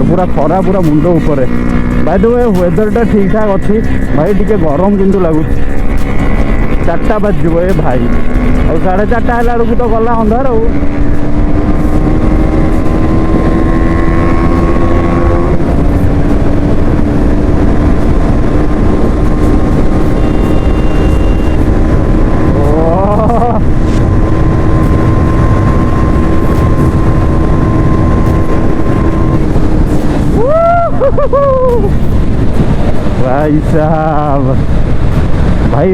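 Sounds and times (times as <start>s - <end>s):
motorcycle engine revving: 0.0s - 35.9s
wind rumble on microphone: 0.0s - 35.9s.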